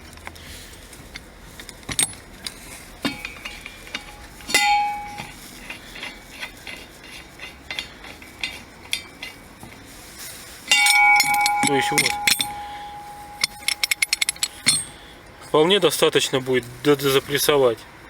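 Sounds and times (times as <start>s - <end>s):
metallic clinks of tools: 1.6s - 6.8s, 10.7s - 15.1s
ringing metal clink: 3.0s - 6.8s, 10.7s - 15.1s.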